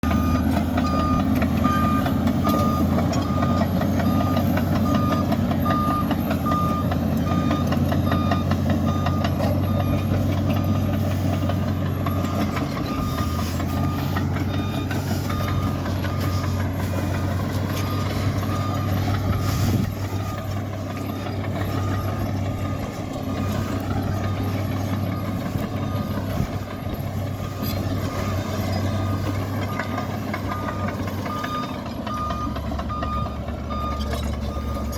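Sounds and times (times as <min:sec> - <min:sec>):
bulldozer diesel engine running: 0:00.0 - 0:34.9
reversing alarm beeping: 0:00.0 - 0:34.9.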